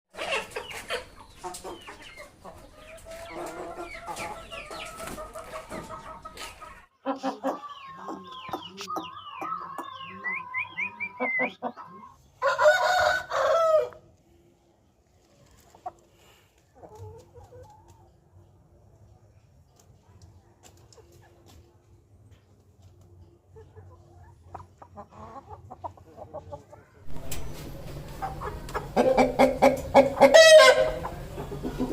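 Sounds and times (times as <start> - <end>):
chickens clucking: 0.1 - 14.1, 15.0 - 31.9
rooster crowing: 12.4 - 14.0.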